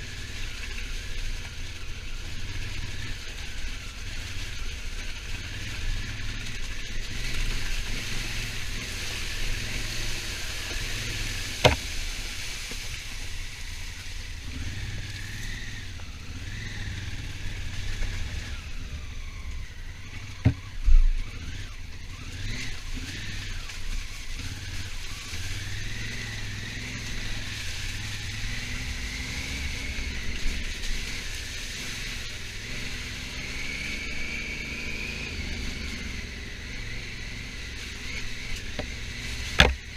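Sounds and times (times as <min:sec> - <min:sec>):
motorcycle engine: 0:00.0 - 0:39.9
sharp knocks: 0:11.6 - 0:11.8, 0:39.6 - 0:39.8.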